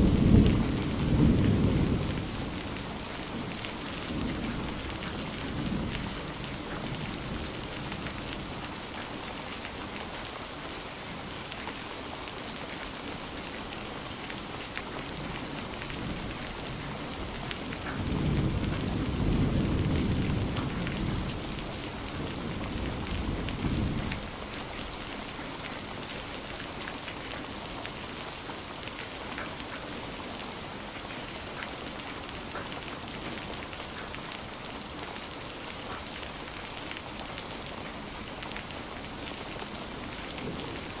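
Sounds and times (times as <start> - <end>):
thunder rumbling: 0.0 - 8.5, 15.1 - 24.5
rain pattering: 0.0 - 41.0.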